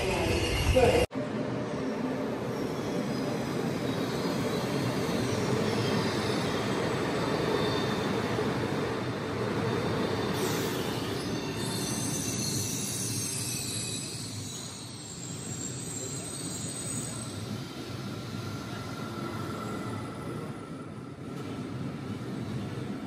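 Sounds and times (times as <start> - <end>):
train wheels on rail: 0.0 - 23.0
thin high wheel squeal: 10.1 - 17.8.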